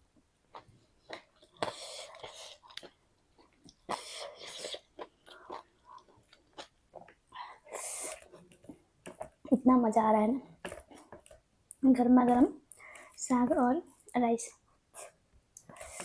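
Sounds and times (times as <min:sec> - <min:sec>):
person chewing food: 0:00.5 - 0:09.5, 0:10.5 - 0:11.8, 0:14.9 - 0:16.0.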